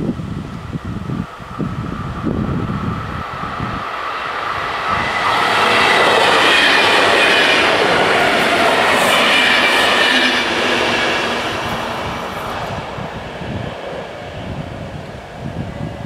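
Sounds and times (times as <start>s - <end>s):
train wheels rolling: 2.2s - 14.5s.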